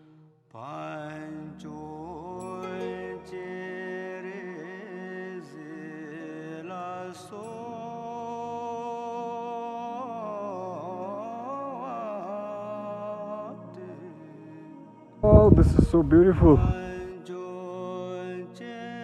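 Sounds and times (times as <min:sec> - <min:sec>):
chanted mantra in long held notes: 0:00.6 - 0:19.0
steady drone: 0:15.2 - 0:17.1.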